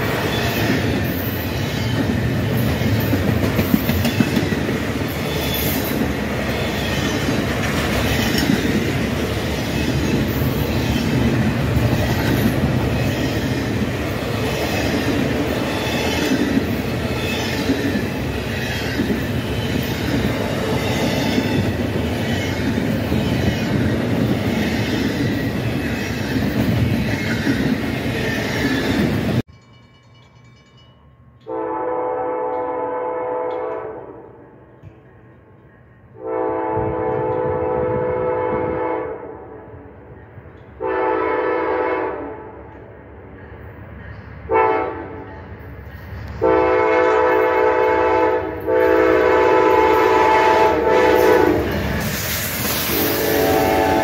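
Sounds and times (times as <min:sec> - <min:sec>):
freight train rumbling past: 0:00.0 - 0:54.0
locomotive air horn: 0:31.5 - 0:34.4, 0:36.2 - 0:39.5, 0:40.8 - 0:42.6, 0:44.5 - 0:45.2, 0:46.4 - 0:51.7, 0:52.9 - 0:54.0.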